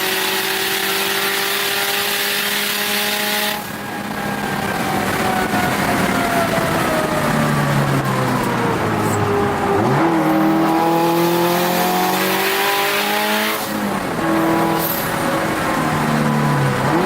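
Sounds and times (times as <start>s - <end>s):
car engine at speed: 0.0s - 17.0s.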